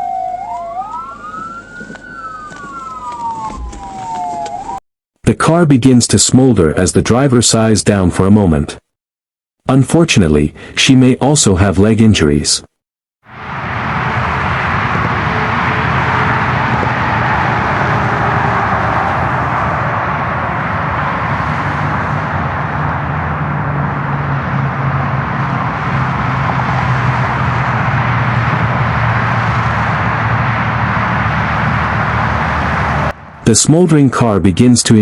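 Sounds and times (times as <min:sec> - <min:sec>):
freeway traffic rush: 0:00.0 - 0:04.8, 0:09.6 - 0:12.4, 0:13.3 - 0:35.0
low engine hum: 0:00.0 - 0:04.8, 0:13.3 - 0:33.6.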